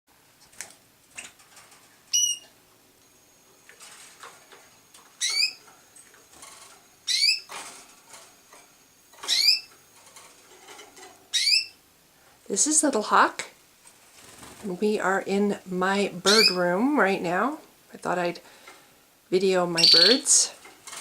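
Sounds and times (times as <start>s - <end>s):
canaries chirping: 2.1s - 2.6s, 5.0s - 5.7s, 6.4s - 7.8s, 9.1s - 9.8s, 10.5s - 11.8s, 16.2s - 16.8s, 19.7s - 20.6s
wings fluttering: 13.8s - 14.9s.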